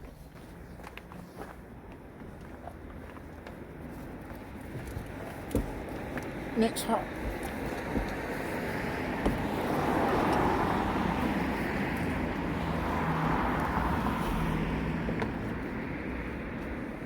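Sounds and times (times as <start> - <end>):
road vehicle passing by: 7.4 - 17.0.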